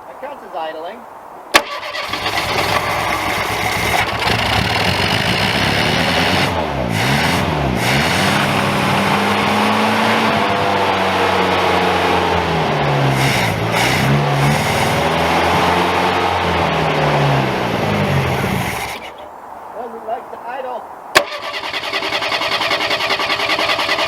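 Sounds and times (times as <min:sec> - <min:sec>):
car engine revs sagging: 0:01.6 - 0:19.3.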